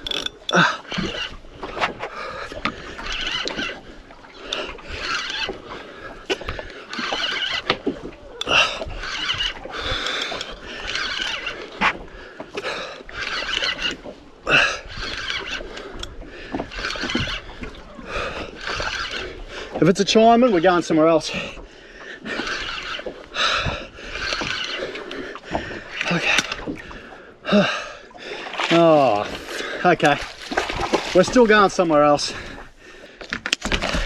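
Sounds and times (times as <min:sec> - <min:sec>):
fishing reel clicks: 0:00.0 - 0:01.4, 0:03.0 - 0:03.8, 0:04.4 - 0:05.6, 0:06.3 - 0:11.8, 0:12.6 - 0:19.4, 0:22.3 - 0:25.2
person breathing hard and grunting: 0:27.1 - 0:29.9.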